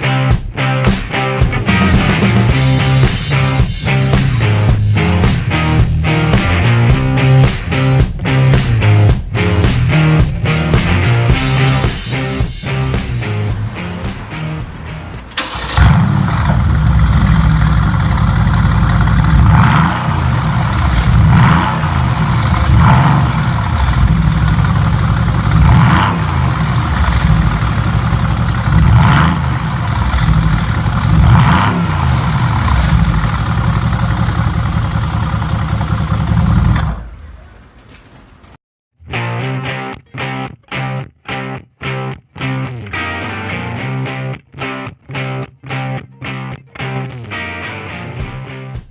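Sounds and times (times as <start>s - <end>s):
car engine idling and revving: 11.6s - 38.6s.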